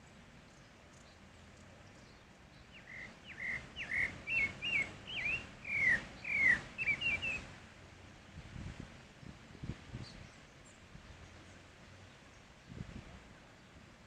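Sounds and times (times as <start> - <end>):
thrush singing whistled notes: 2.0 - 7.5.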